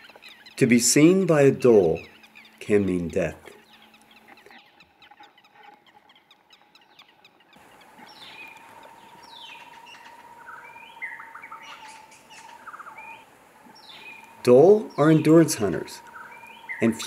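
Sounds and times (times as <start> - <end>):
birds chirping: 0.0 - 17.0
downward-sliding whistled bird calls: 3.6 - 17.0
faint steady tone: 7.6 - 17.0.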